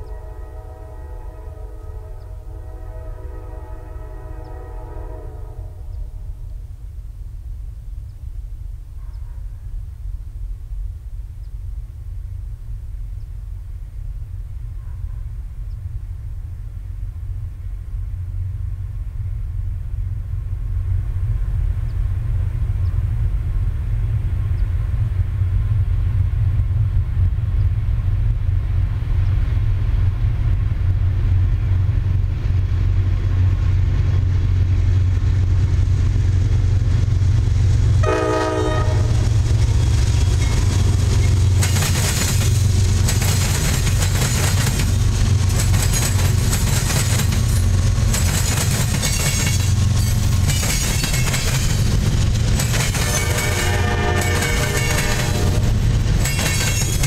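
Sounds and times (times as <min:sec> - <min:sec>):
train horn blast: 0:00.0 - 0:06.5, 0:38.0 - 0:39.4, 0:53.0 - 0:55.9
diesel locomotive rumbling: 0:00.0 - 0:57.0
wheels clattering over crossing: 0:41.2 - 0:57.0.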